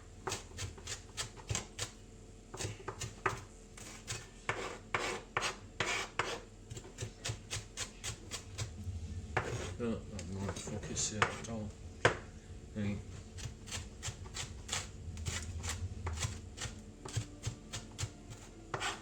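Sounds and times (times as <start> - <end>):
knife chopping on cutting board: 0.2 - 8.7, 9.4 - 9.7, 10.4 - 11.4, 12.0 - 12.2, 13.4 - 19.0.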